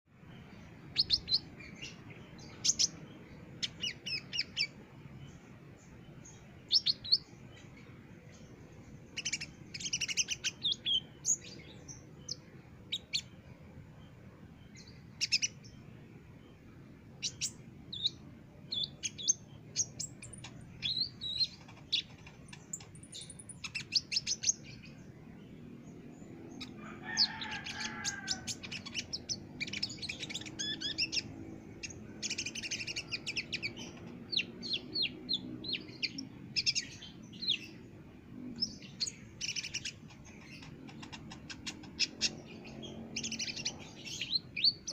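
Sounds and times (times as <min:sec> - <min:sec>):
lower fuller bird call: 0:26.6 - 0:31.3.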